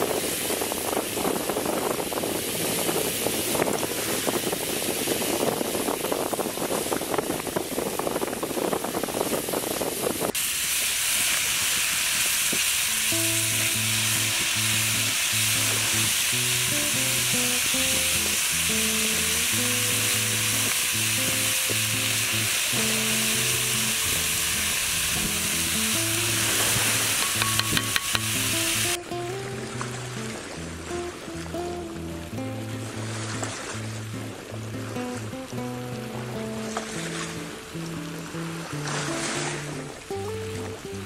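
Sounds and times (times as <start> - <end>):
vegetables sizzling in oil: 10.3 - 29.0
background music with simple melody: 25.2 - 33.7
spatula clicking on pan: 27.2 - 28.5.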